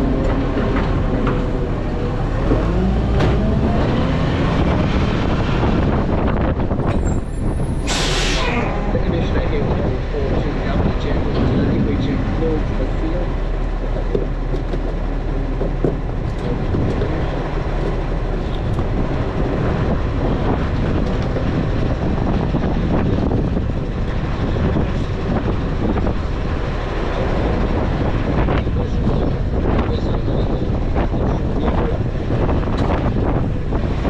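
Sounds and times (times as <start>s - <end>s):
garbage truck engine rumbling: 0.0s - 34.0s
wind buffeting microphone: 0.0s - 34.0s
rattles and clatter: 10.8s - 26.2s.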